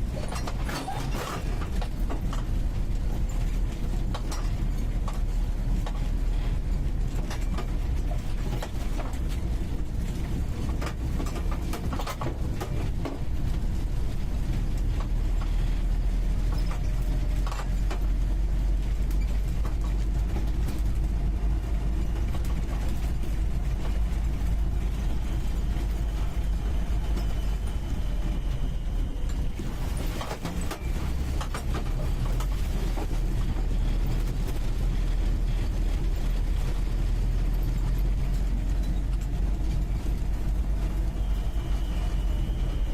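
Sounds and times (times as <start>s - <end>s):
body knocks and rattles: 0.0s - 27.8s
car engine droning inside cabin: 0.0s - 42.9s.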